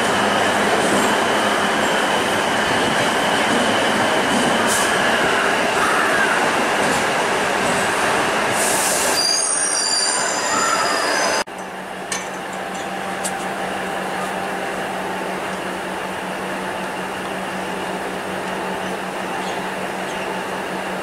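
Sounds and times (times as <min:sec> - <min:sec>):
diesel railcar engine humming: 0:00.0 - 0:21.0
train running through station: 0:00.0 - 0:21.0
train wheel squeals: 0:08.6 - 0:11.5.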